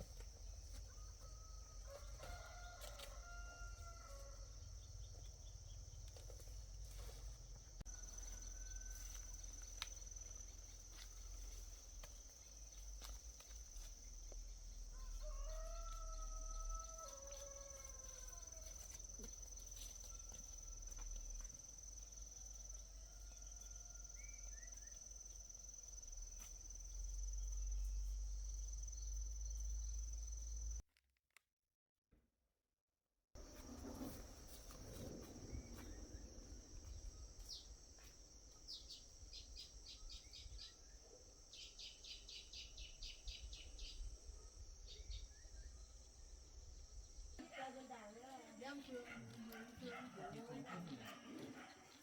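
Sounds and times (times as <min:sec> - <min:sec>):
rooster crowing: 0:00.8 - 0:04.9, 0:07.9 - 0:09.7, 0:14.8 - 0:19.0, 0:22.5 - 0:24.6
low rumble: 0:33.4 - 0:37.8.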